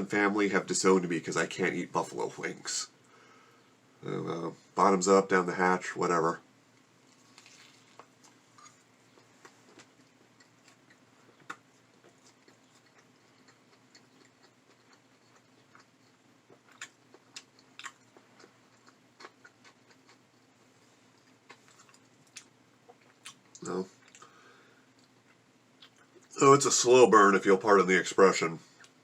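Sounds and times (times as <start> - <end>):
open-mouth chewing: 7.1 - 26.3.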